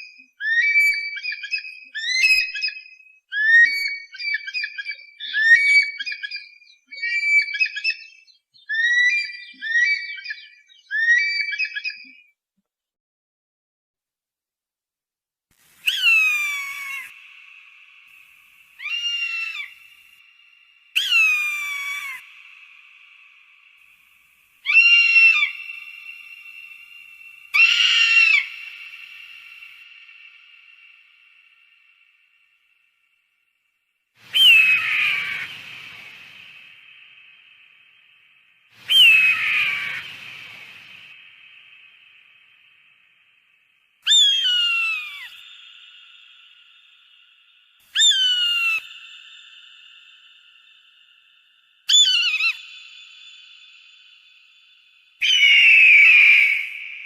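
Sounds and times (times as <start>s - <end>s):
eagle screaming: 15.9s - 17.2s, 18.8s - 19.8s, 21.0s - 22.3s, 24.6s - 25.7s, 27.5s - 28.7s, 34.3s - 36.2s, 38.9s - 40.8s, 44.0s - 45.4s, 48.0s - 48.9s, 55.2s - 56.8s
hawk calling: 15.9s - 17.2s, 18.8s - 20.0s, 21.0s - 22.3s, 24.6s - 26.8s, 27.5s - 29.9s, 34.3s - 36.3s, 38.8s - 40.9s, 44.0s - 45.4s.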